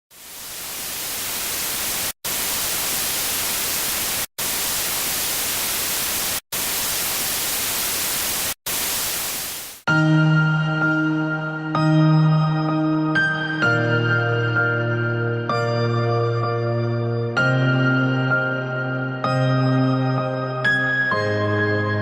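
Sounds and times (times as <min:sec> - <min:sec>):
loud static hiss: 0:00.1 - 0:09.8
calm ambient music: 0:09.9 - 0:22.0.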